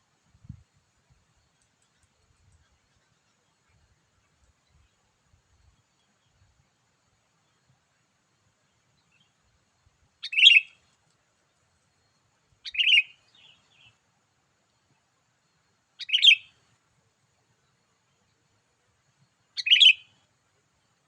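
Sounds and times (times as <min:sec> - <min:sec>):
bulbul bright calls: 0:10.2 - 0:10.7, 0:12.6 - 0:13.9, 0:16.0 - 0:16.5, 0:19.6 - 0:20.1.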